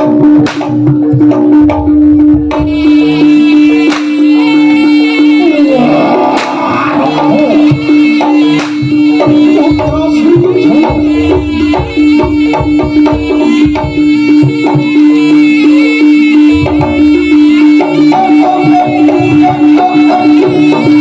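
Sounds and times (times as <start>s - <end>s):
hand drums busy rhythm: 0.0s - 21.0s
long held note: 2.5s - 21.0s
melody lines: 11.1s - 21.0s.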